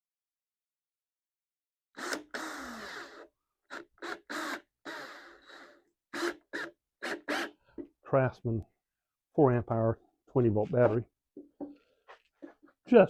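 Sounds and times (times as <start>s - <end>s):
cordless drill driving screws into wood: 2.0s - 7.9s.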